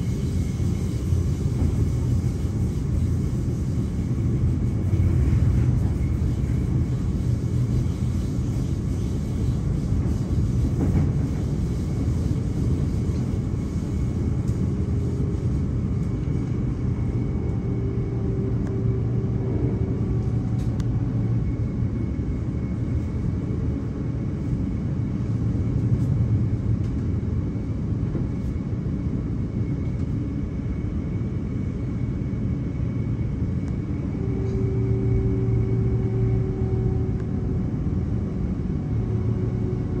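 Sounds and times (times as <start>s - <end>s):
train wheels rumbling on track: 0.0s - 40.0s
faint hum: 12.8s - 40.0s.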